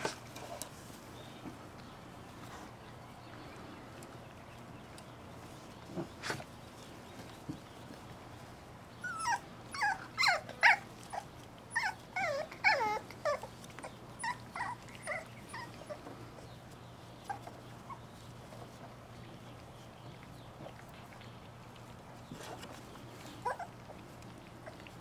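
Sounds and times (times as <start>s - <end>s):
puppies whining and yelping: 8.4s - 18.9s, 22.4s - 25.0s.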